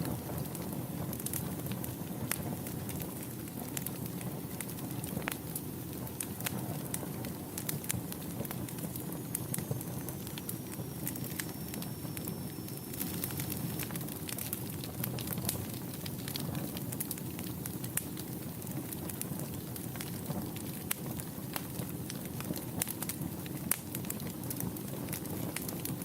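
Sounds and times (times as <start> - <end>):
fire crackling and popping: 0.0 - 26.0
low rumble of flames: 0.0 - 26.0
faint high whistle: 9.3 - 13.8.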